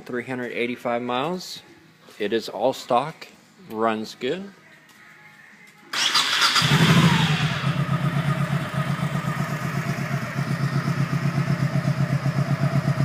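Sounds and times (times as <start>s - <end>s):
motorcycle engine idling: 6.6s - 13.0s.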